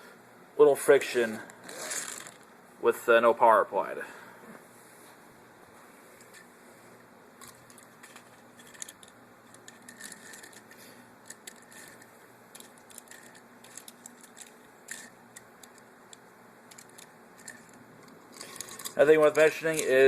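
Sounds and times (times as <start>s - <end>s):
toy train clicking on plastic track: 7.7s - 12.0s, 12.6s - 15.8s, 16.7s - 17.8s, 18.4s - 20.0s.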